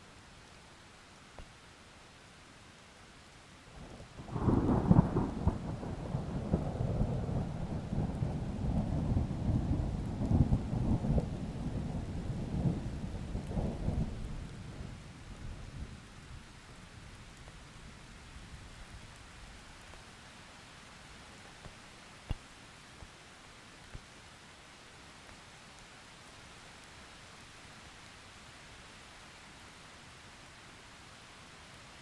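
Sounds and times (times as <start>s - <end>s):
steady rain: 0.0s - 32.0s
thunder crack and rumble: 4.2s - 15.8s.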